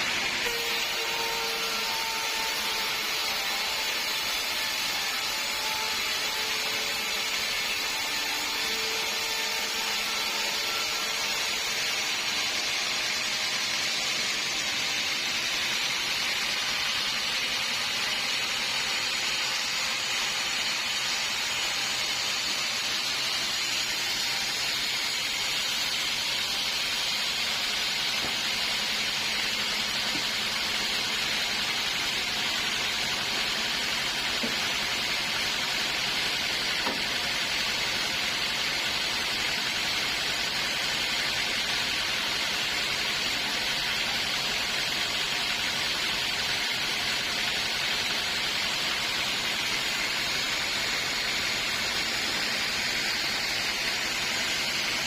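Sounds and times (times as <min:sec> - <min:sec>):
saw cutting through log: 0:00.0 - 0:55.0.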